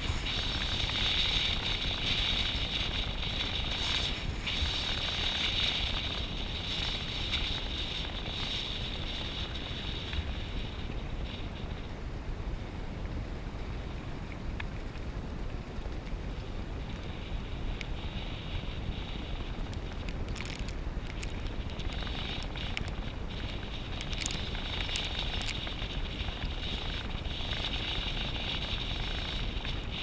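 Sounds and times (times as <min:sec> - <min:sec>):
wind buffeting microphone: 0:00.0 - 0:30.0
small clicks: 0:19.7 - 0:26.0.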